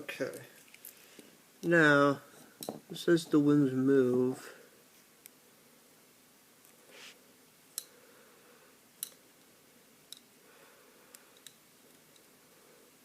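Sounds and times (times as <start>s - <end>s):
soft rustle: 0.2s - 1.4s, 4.3s - 5.3s, 6.6s - 7.3s.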